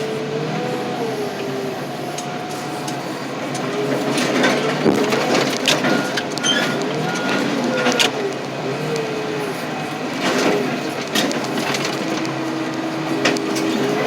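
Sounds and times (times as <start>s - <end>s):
heavy machinery running: 0.0s - 14.0s
steel squealing on steel: 5.7s - 8.2s.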